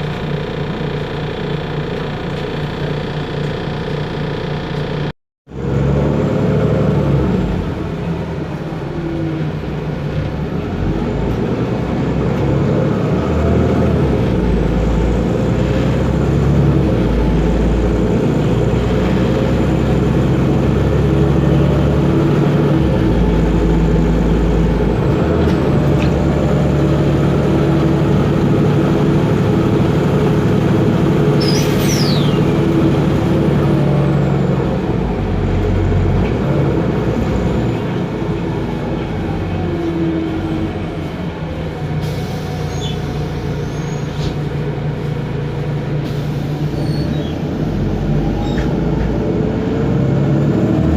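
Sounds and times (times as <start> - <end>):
bus diesel engine running: 0.0 - 50.9
brief high squeak: 31.4 - 32.5, 42.6 - 44.3, 46.7 - 47.4, 48.4 - 48.7.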